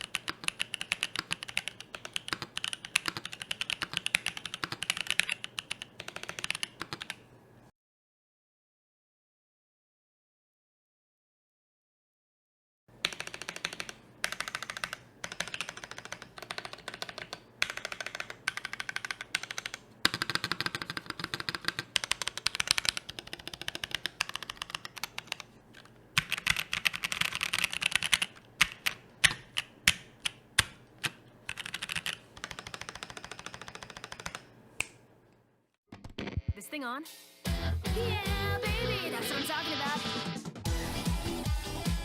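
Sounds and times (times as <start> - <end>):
mechanical keyboard typing: 0.0 - 7.2, 13.0 - 34.5.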